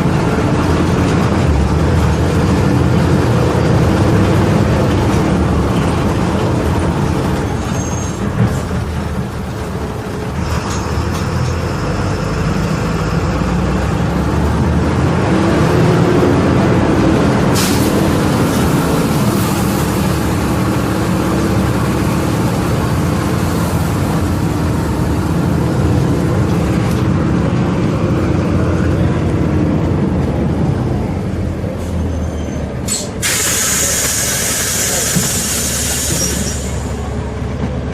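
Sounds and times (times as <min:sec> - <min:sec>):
bus diesel engine running: 0:00.0 - 0:37.9
air brake hisses: 0:17.6 - 0:18.1, 0:32.8 - 0:36.9.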